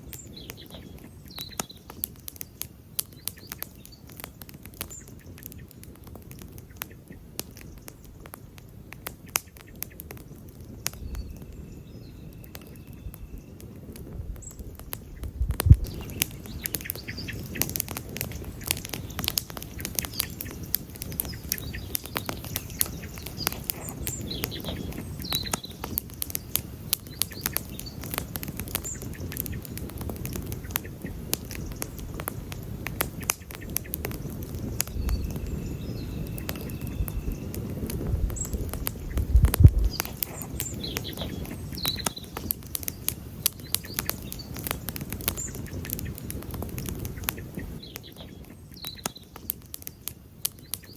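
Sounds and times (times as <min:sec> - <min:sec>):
campfire crackling and popping: 0:00.0 - 0:50.9
small birds chirping: 0:00.0 - 0:50.9
low rumble: 0:15.2 - 0:16.0.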